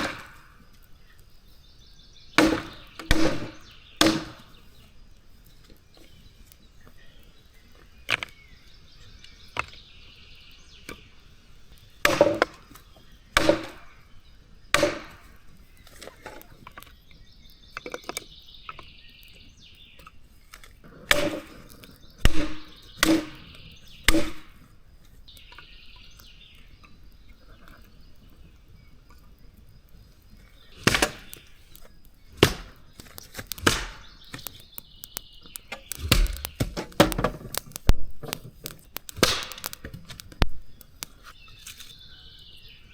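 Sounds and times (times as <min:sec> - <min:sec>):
axe chopping wood: 0:00.0 - 0:00.4, 0:02.4 - 0:04.6, 0:12.0 - 0:12.6, 0:13.4 - 0:13.9, 0:14.8 - 0:15.2, 0:21.1 - 0:21.6, 0:22.2 - 0:23.5, 0:24.1 - 0:24.5, 0:30.8 - 0:31.4, 0:32.3 - 0:34.6, 0:35.6 - 0:40.6
bird singing: 0:00.0 - 0:42.9.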